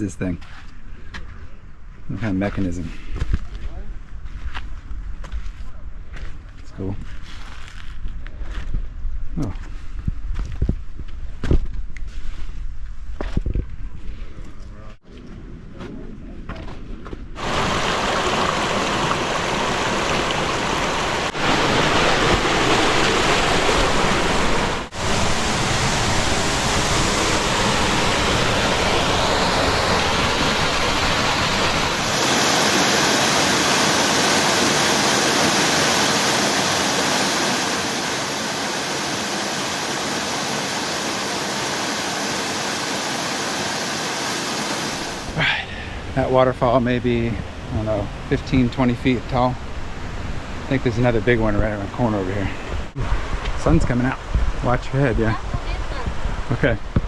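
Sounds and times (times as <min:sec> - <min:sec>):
waterfall roaring: 0:17.4 - 0:45.5.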